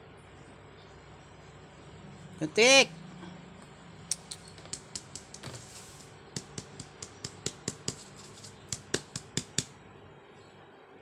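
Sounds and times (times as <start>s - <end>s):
kittens playing with light clicks: 3.6s - 9.8s.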